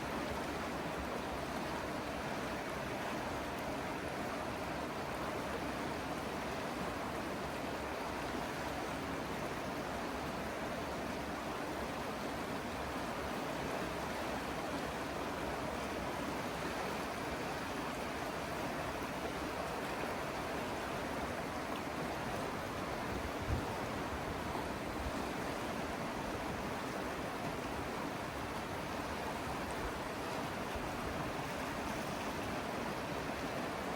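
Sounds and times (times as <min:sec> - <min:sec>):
river rushing over rocks: 0:00.0 - 0:33.9.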